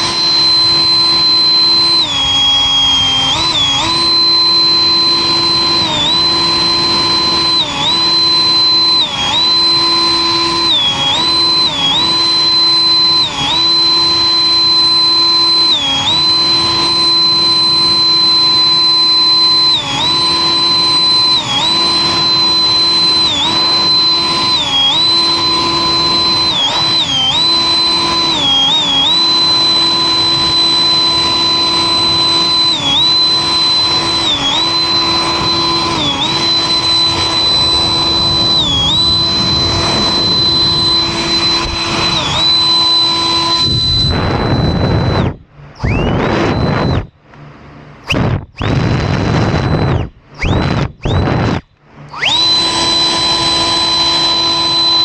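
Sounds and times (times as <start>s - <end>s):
electric motor whine: 0.0s - 47.1s, 48.0s - 55.0s.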